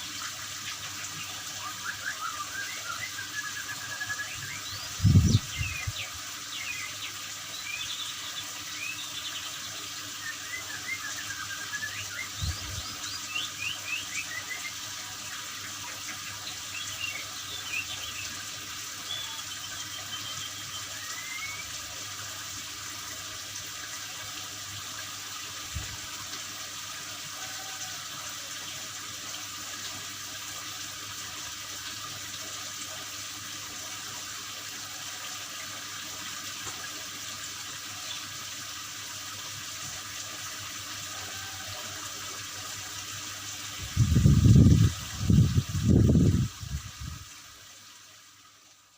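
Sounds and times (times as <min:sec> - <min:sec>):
water running steadily: 0:00.0 - 0:48.9
bird chirps and whistles: 0:01.6 - 0:06.0, 0:10.2 - 0:14.8, 0:19.1 - 0:21.7.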